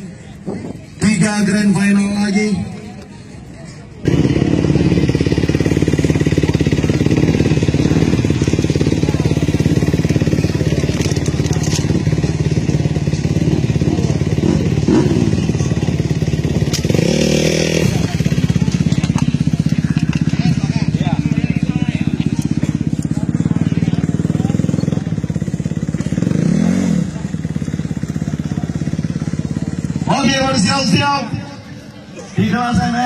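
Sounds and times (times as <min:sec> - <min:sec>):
motocross engines running: 0:00.0 - 0:33.0.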